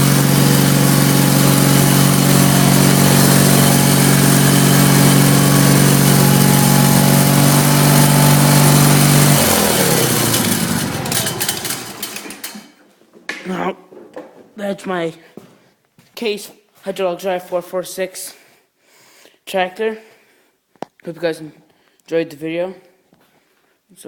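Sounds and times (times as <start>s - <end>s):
tractor engine running and winding down: 0.0s - 12.7s.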